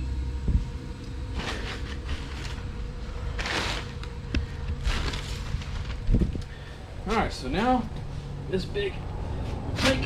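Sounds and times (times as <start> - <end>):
steady low hum: 0.0 - 10.0
scraping rustles: 1.3 - 6.7, 9.4 - 10.0.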